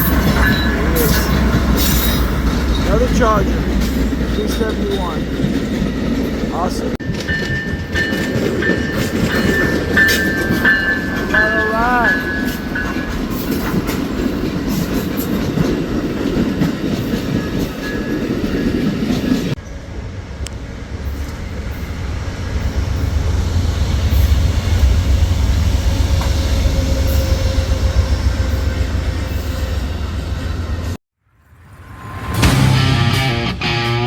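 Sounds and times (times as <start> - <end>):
train wheels clacking over rail joints: 0.0 - 19.6
train low rumble: 0.0 - 34.0.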